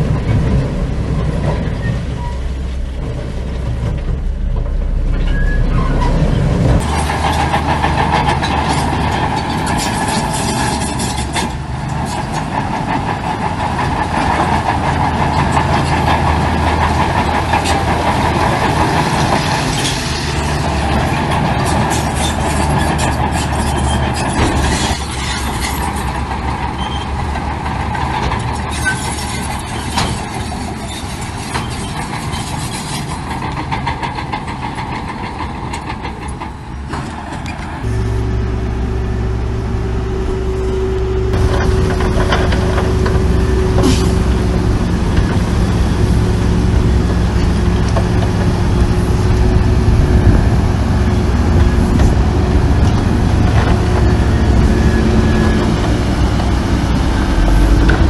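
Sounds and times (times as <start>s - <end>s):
heavy diesel machinery running: 0.0s - 58.0s
metal clanks and rattles: 3.0s - 37.9s.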